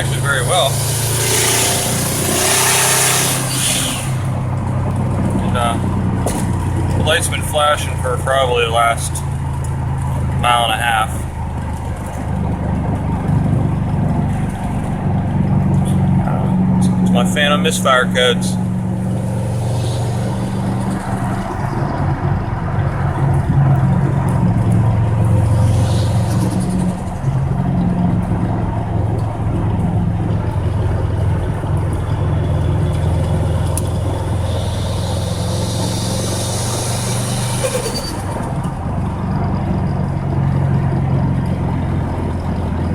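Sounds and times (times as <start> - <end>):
higher rushing noise: 0.0 - 4.9, 18.0 - 28.9, 33.9 - 38.7
car engine cruising: 0.0 - 42.9.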